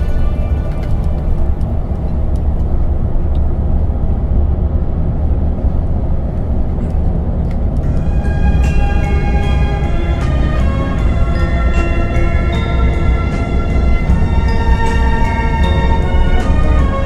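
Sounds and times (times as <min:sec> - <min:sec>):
music: 0:00.0 - 0:03.0, 0:07.8 - 0:17.0
vehicle engine and road rumble: 0:00.0 - 0:17.0.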